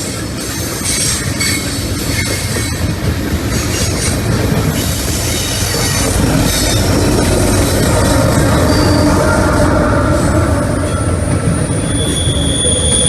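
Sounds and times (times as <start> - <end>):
train wheels rumbling on rail: 0.0 - 13.0
high-pitched wheel squeal: 4.8 - 13.0.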